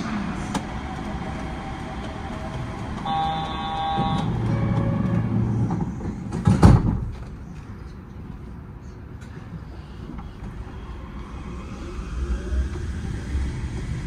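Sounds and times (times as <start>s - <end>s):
train low hum: 0.0s - 14.0s
electronic tone: 3.0s - 5.3s.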